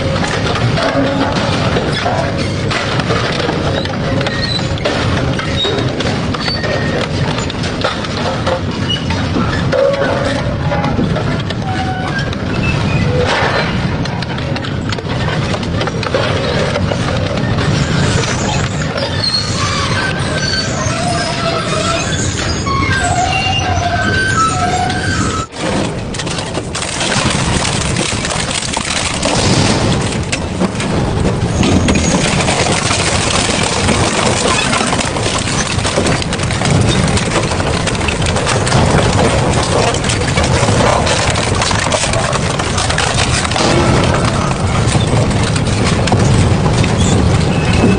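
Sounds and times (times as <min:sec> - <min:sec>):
metal shredder grinding scrap: 0:15.4 - 0:47.9
short metallic squeals: 0:17.8 - 0:25.5.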